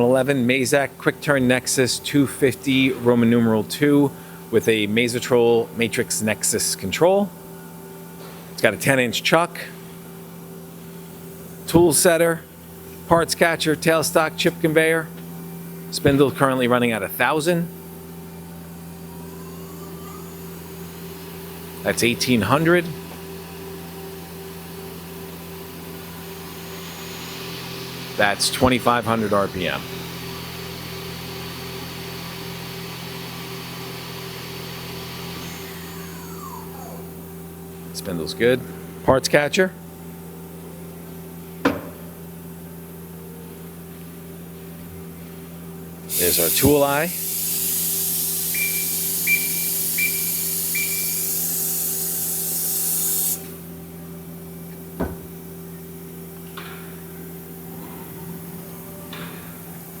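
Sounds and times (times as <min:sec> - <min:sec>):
lathe spindle humming and whining: 0:16.6 - 0:37.8, 0:45.6 - 0:54.4
loud spraying hiss: 0:46.1 - 0:53.6
short beeps: 0:48.6 - 0:51.3.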